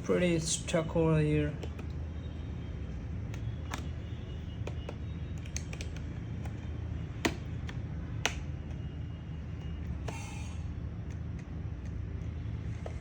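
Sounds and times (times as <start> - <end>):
plastic clicks and taps: 1.6 - 2.0, 3.2 - 8.9.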